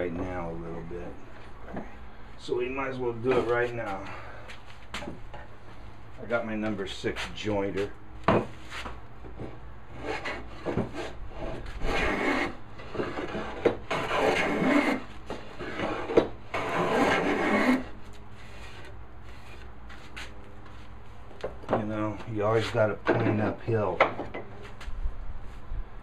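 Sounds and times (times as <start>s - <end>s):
hand plane shaving wood: 10.0s - 19.6s.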